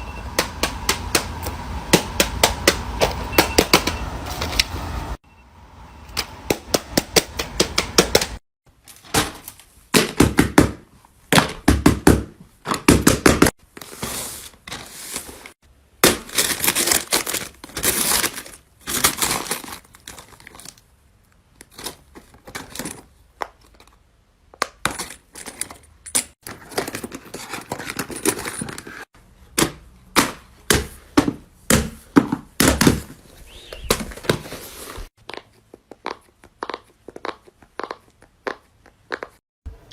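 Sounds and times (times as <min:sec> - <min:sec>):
plastic crinkling: 0:16.2 - 0:20.9.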